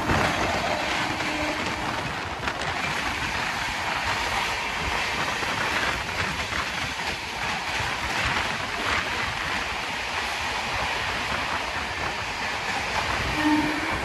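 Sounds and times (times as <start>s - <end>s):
train horn: 0.0s - 2.2s, 13.1s - 14.0s
train wheel and rail noise: 0.0s - 14.0s.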